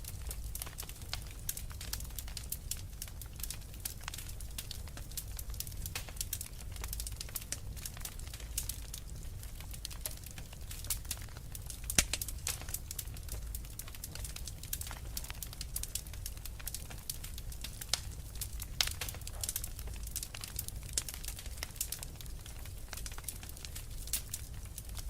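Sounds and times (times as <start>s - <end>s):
low fire rumble: 0.0s - 25.0s
wood fire crackling: 0.0s - 25.0s
small pops and snaps: 9.6s - 25.0s.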